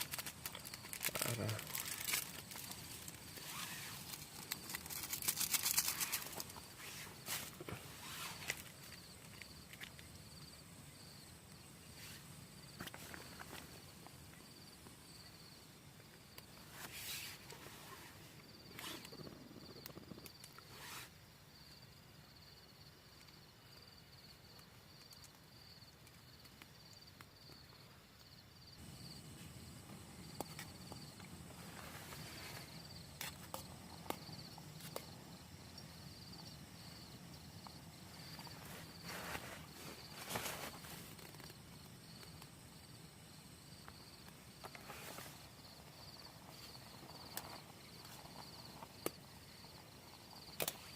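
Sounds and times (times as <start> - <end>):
insect chirping trill: 0.0 - 50.9.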